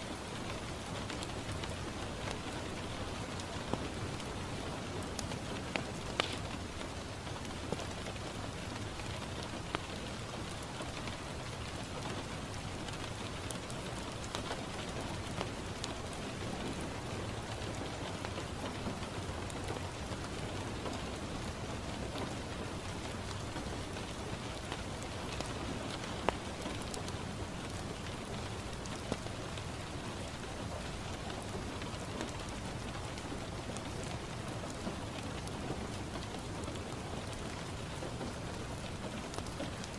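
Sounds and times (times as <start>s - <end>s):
rain pattering on window: 0.0s - 39.9s
wood fire popping: 6.1s - 6.5s.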